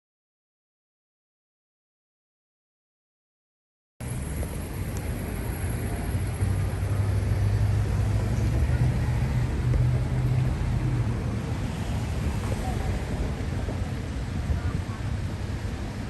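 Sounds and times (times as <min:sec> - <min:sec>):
engine droning: 0:04.0 - 0:16.0
noisy rumble: 0:04.0 - 0:16.0.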